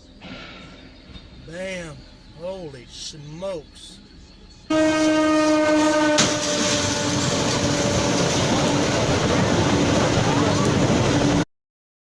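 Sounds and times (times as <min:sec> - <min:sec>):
train horn blaring: 0:04.7 - 0:09.0
crashing grinding roar: 0:05.8 - 0:11.4.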